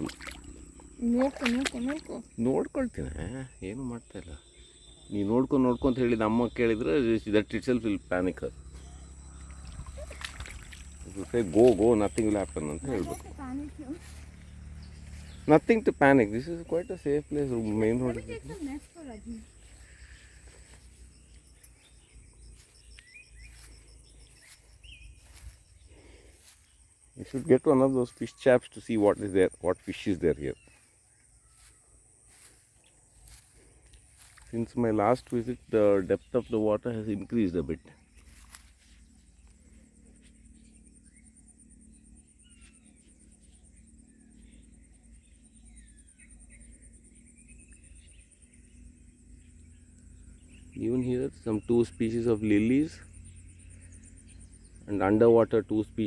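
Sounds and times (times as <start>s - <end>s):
thin high-pitched hum: 0.0s - 27.4s
low outdoor rumble: 0.0s - 27.6s
bird chirping calls: 0.0s - 56.0s
insect pulsing trill: 0.0s - 56.0s.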